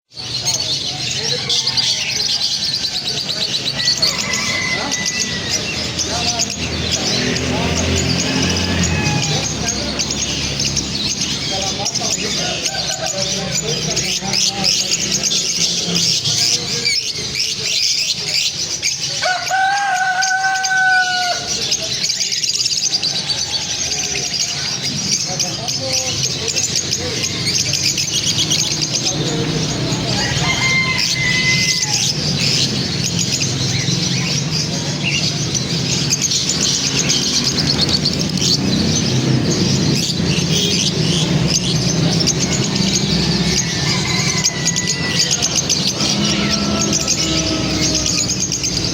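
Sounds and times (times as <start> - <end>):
flock of birds chirping: 0.0 - 48.9.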